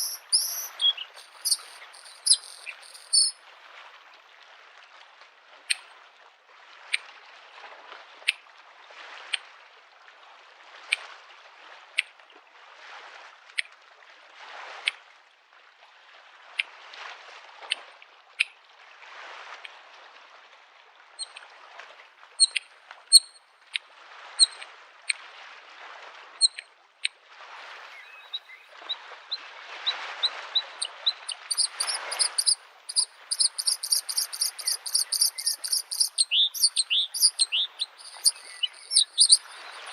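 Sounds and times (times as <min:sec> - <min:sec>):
bird singing high trill: 0:00.0 - 0:03.4, 0:31.3 - 0:39.9
small waves lapping at shore: 0:00.0 - 0:39.9.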